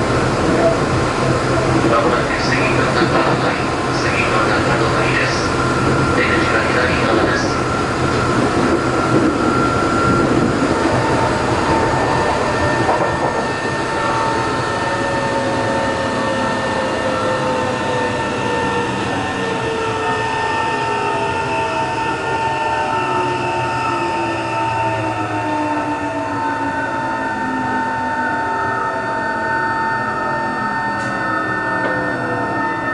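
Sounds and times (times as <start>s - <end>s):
wheel and rail noise: 0.0s - 20.3s
train motor and gear tones: 0.0s - 27.3s.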